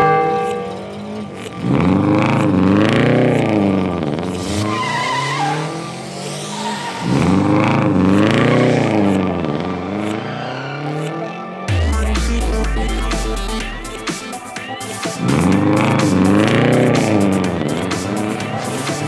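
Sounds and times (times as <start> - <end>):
car engine revving: 0.0 - 14.5, 15.2 - 19.0
high squeal: 4.4 - 7.3.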